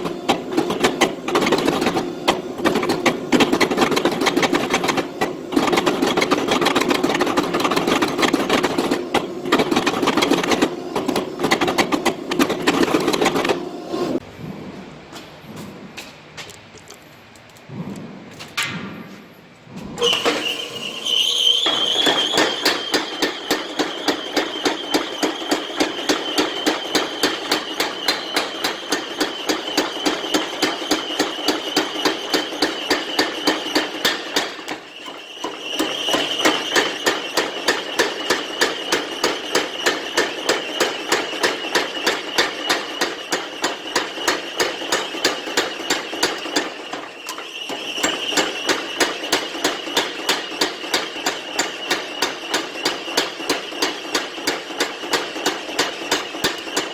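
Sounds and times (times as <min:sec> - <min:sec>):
hammer striking steel: 0:20.0 - 0:34.8.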